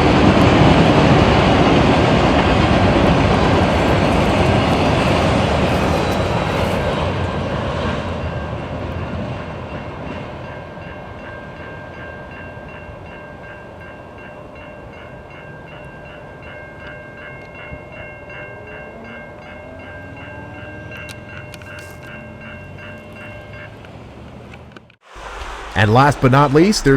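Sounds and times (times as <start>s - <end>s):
train passing: 0.0s - 26.9s
level-crossing bell ringing: 3.4s - 7.0s, 8.2s - 23.9s.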